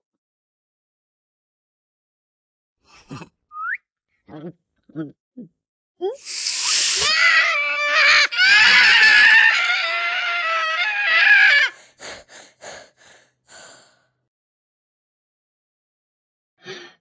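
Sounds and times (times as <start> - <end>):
short breathy bursts: 6.2 - 7.0
cat yowling: 6.3 - 11.8.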